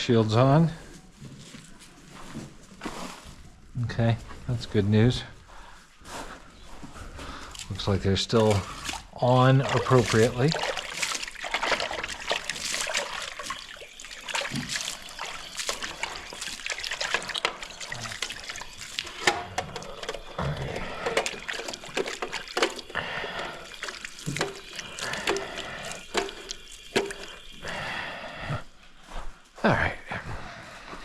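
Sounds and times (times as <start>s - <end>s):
water trickling and splashing: 7.1s - 28.1s.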